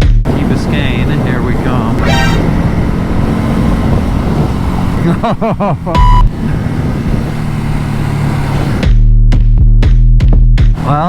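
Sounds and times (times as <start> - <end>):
motorcycle engine running: 0.0 - 11.0
road and wind noise: 0.0 - 11.0
loud electronic beep: 2.0 - 2.6, 6.0 - 6.3.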